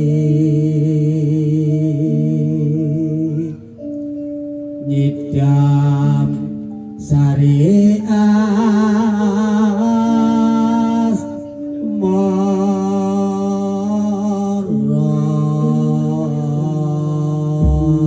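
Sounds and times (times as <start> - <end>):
person singing long wavering notes: 0.0 - 18.0
electronic keyboard chords: 17.6 - 18.0.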